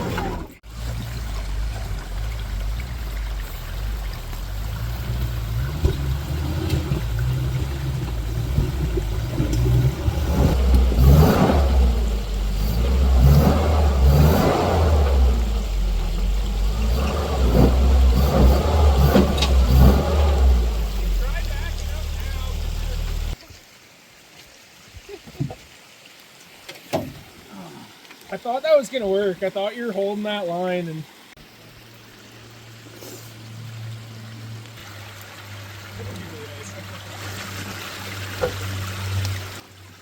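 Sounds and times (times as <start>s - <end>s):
truck engine revving: 0.0s - 23.4s.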